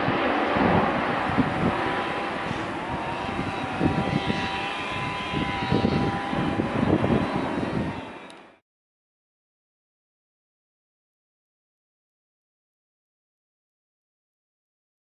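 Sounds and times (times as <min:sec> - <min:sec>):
wind buffeting microphone: 0:00.0 - 0:08.3
jet engines rushing and whining: 0:00.0 - 0:08.6.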